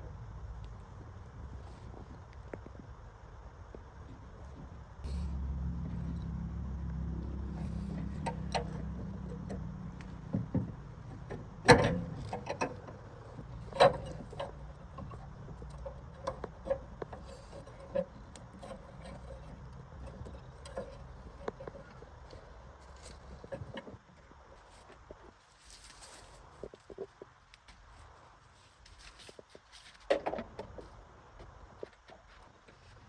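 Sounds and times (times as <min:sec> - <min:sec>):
low engine rumble: 0:00.0 - 0:25.3
metallic clanks and knocks: 0:05.1 - 0:24.0.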